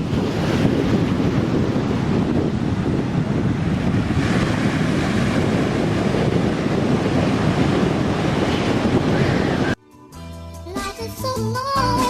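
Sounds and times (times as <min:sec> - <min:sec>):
surf washing onto beach: 0:00.0 - 0:09.8
wind buffeting microphone: 0:00.0 - 0:09.8.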